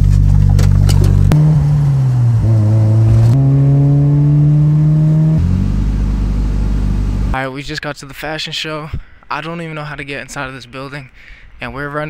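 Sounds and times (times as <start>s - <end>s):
car engine accelerating: 0.0s - 7.4s.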